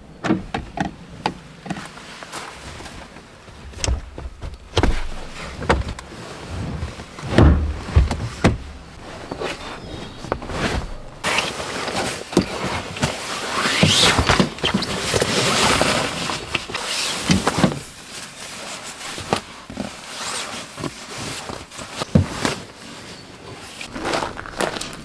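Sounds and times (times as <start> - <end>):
rustling: 1.7 - 25.0
handling clicks and knocks: 3.2 - 6.1, 6.9 - 11.4.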